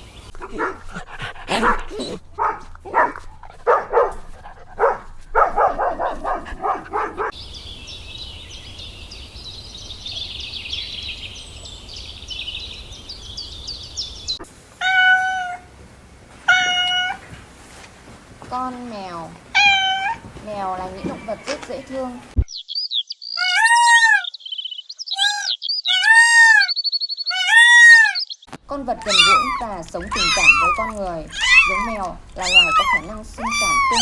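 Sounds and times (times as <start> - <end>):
cat meowing: 14.8 - 15.7, 16.5 - 17.3, 19.6 - 20.2, 27.3 - 28.2, 29.1 - 34.0.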